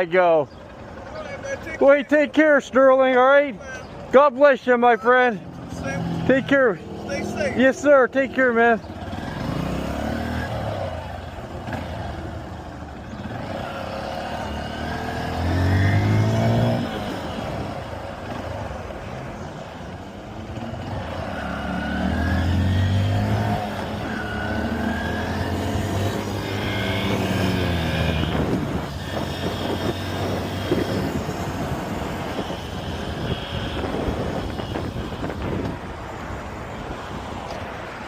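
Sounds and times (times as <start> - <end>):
motorcycle engine running: 0.4 - 1.8, 5.3 - 36.4
wind noise on microphone: 27.0 - 37.8.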